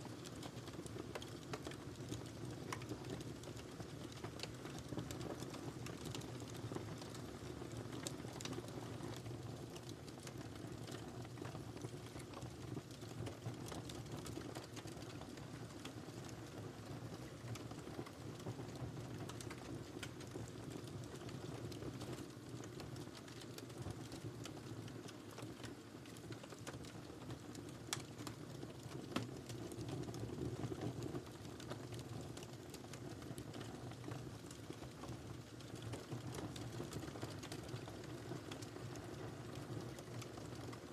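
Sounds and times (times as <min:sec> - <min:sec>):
wood crackling and popping: 0:00.0 - 0:40.9.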